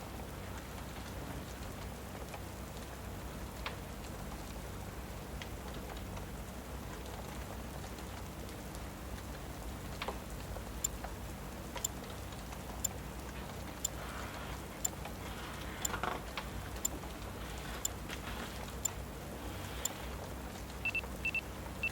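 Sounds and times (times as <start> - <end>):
steady rain: 0.0 - 21.9
fireplace crackle: 0.1 - 21.8
sharp ticking: 20.9 - 21.9.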